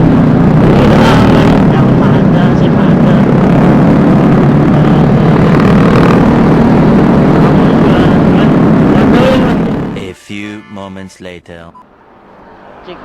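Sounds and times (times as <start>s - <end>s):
scooter engine and road noise: 0.0s - 10.2s.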